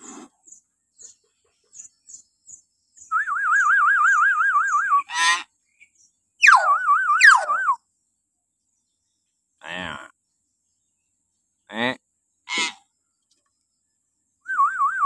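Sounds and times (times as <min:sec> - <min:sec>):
bird chirping: 0:00.4 - 0:15.0
bird whistle wavering: 0:03.1 - 0:05.4, 0:06.4 - 0:07.8, 0:14.4 - 0:15.0
shrill bird shriek: 0:05.0 - 0:05.5, 0:06.4 - 0:07.8.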